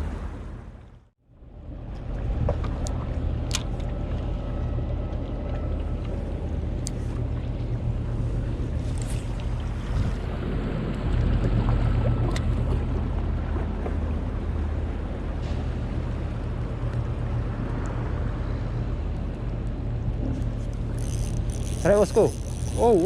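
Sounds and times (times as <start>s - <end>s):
boat engine rumble: 0.0s - 23.0s
water noise: 0.0s - 23.0s
wind: 0.0s - 23.0s
sharp clicks and ticks: 20.4s - 23.0s.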